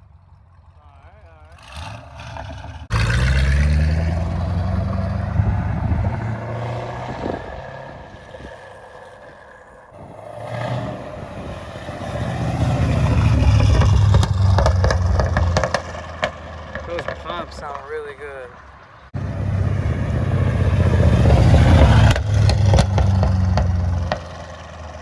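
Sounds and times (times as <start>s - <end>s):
car engine revving: 0.4s - 25.0s
exhaust pops: 12.7s - 18.2s, 20.2s - 25.0s.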